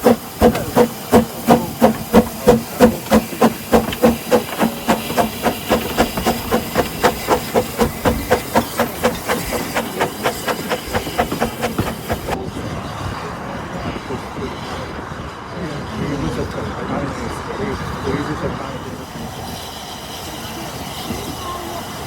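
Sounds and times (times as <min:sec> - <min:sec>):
steady steam hiss: 0:00.0 - 0:12.4
steam locomotive chuffing: 0:00.0 - 0:12.4, 0:18.5 - 0:22.0.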